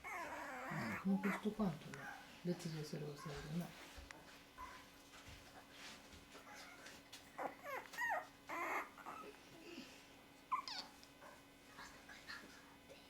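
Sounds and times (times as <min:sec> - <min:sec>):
puppy whimpering: 0:00.0 - 0:02.2, 0:06.5 - 0:09.8, 0:10.5 - 0:11.0
faint steady hum: 0:00.0 - 0:13.0.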